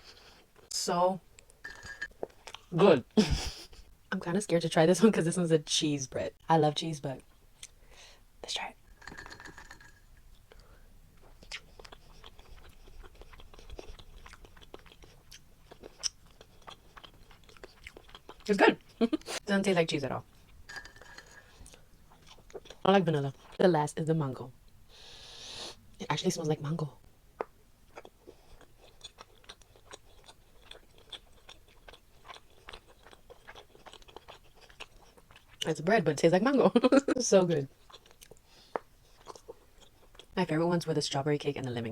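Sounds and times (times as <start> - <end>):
person chewing: 1.7 - 2.7, 9.0 - 19.4, 20.3 - 23.6, 27.4 - 35.6, 37.8 - 40.4.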